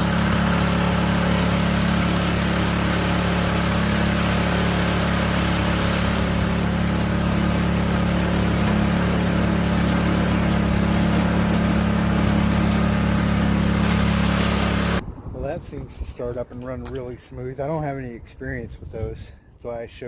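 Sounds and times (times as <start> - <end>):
small gas engine running: 0.0 - 15.0.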